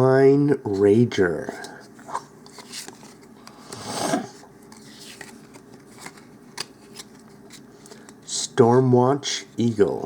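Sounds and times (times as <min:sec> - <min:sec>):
trading cards rustling and sliding: 0:01.5 - 0:08.3.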